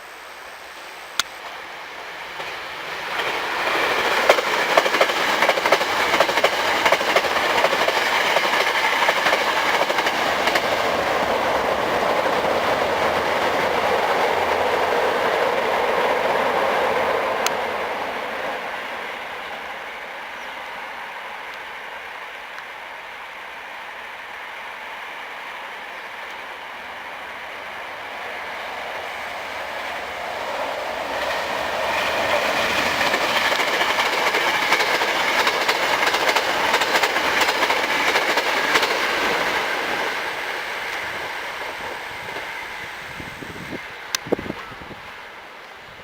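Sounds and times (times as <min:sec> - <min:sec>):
train passing at speed: 0:00.0 - 0:46.0
wheels clicking over rail joints: 0:02.4 - 0:17.6, 0:30.6 - 0:42.5.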